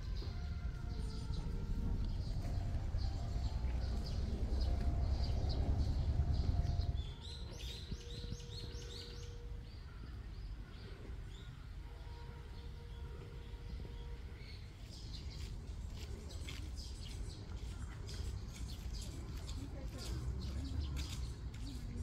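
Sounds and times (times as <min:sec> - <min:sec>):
low rumble: 0:00.0 - 0:09.2
small birds chirping: 0:14.4 - 0:22.0.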